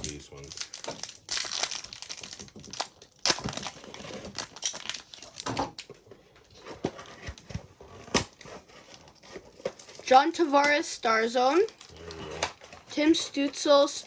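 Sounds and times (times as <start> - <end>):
wrapper ripping: 0.0 - 5.9, 11.4 - 12.9
foil wrappers crinkling: 0.0 - 14.0.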